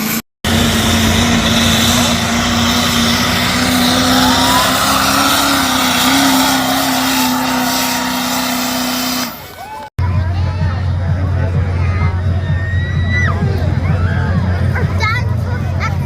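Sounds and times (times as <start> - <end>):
high whine: 0.0 - 9.5
diesel truck engine revving hard: 0.0 - 9.6.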